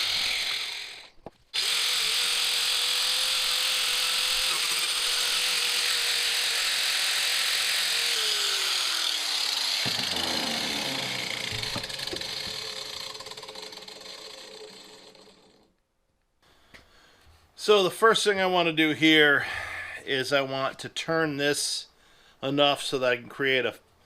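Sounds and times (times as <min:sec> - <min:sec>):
angle grinder cutting wood: 0:00.0 - 0:15.7
grinder spinning down: 0:00.0 - 0:15.7.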